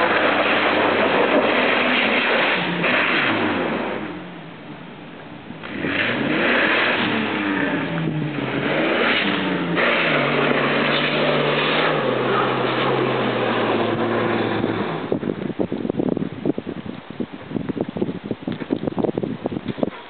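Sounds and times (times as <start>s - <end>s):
engine revving under load: 0.0s - 4.4s, 5.6s - 15.4s
crackly rustle: 15.3s - 20.0s.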